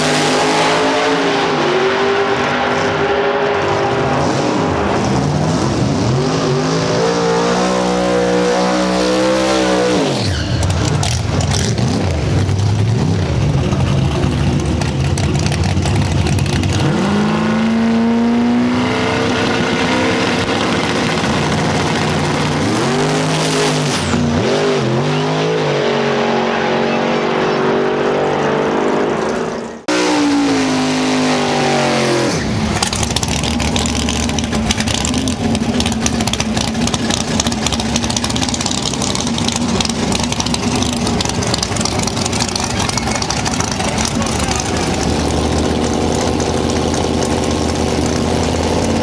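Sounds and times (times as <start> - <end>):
race car engines revving: 0.0 - 49.0
dense crackling noise: 13.4 - 16.9, 32.7 - 49.0.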